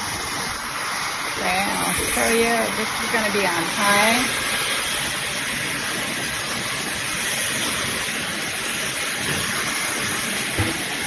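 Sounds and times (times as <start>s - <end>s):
hair dryer running: 0.0s - 8.0s.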